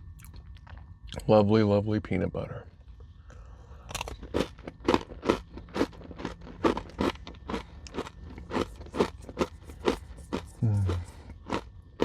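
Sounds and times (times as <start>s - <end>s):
chewing crunchy granola bar: 0.1s - 1.2s, 3.8s - 12.0s.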